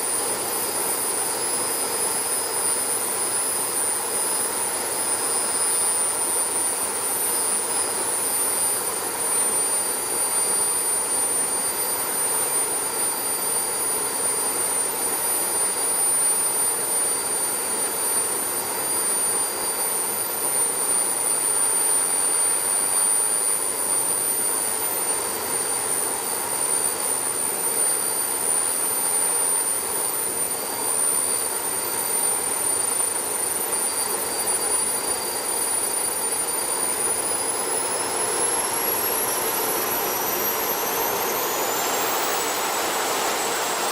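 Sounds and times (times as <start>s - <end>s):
engines whining: 37.4s - 43.9s.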